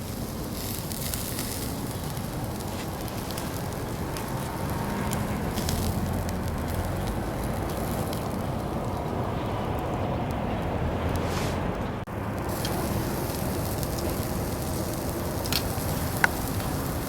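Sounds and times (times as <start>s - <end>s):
fire crackling: 0.0s - 17.0s
low fire rumble: 0.0s - 17.0s
small pops: 12.4s - 17.0s.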